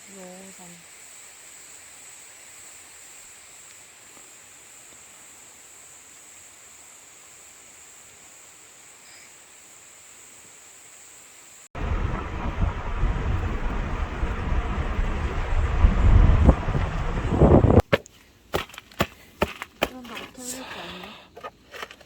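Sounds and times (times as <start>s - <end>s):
insect chorus chirring: 0.0s - 16.2s
loud rumbling noise: 11.8s - 17.8s.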